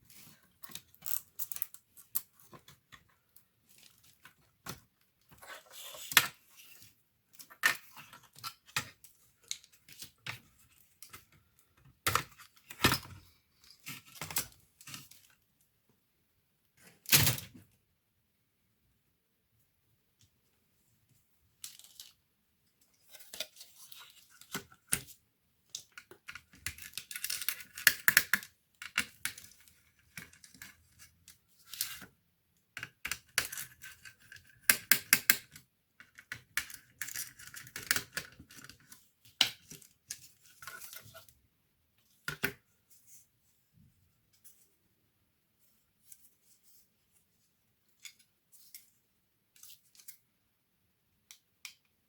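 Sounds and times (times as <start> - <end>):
small clicks scrapes and rustles: 21.6 - 22.2.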